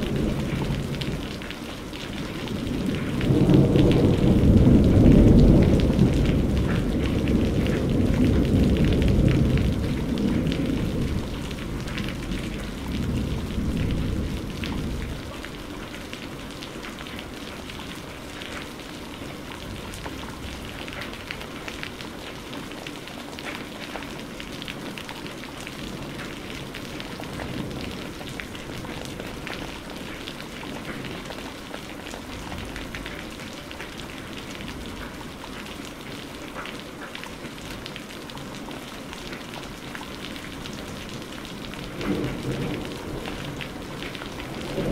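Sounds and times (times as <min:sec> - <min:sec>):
low thunder rumble: 0:00.0 - 0:15.7, 0:41.6 - 0:44.9
heavy rain falling: 0:00.0 - 0:44.9.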